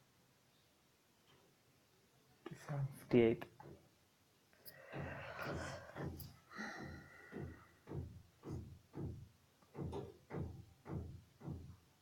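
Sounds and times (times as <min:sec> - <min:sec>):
dull low thuds: 0:04.9 - 0:11.8.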